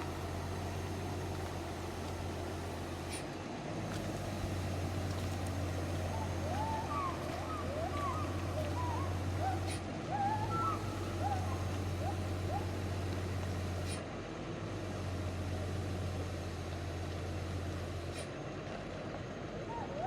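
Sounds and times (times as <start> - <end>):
truck engine drone: 0.0 - 20.0
bird whistled calls: 6.0 - 12.8.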